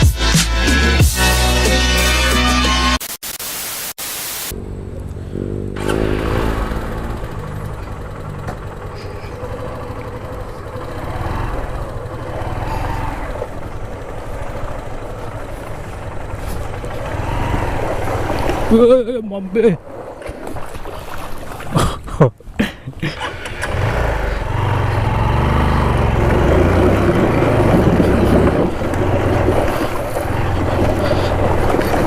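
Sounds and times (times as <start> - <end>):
loud steady hiss: 2.8 - 4.5
motorcycle engine running: 4.5 - 19.5, 23.2 - 32.0
wind on microphone: 27.0 - 32.0.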